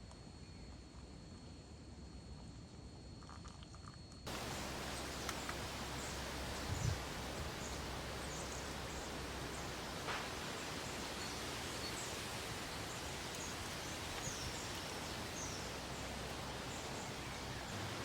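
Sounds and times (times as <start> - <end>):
outdoor woodland hiss: 4.3 - 18.0.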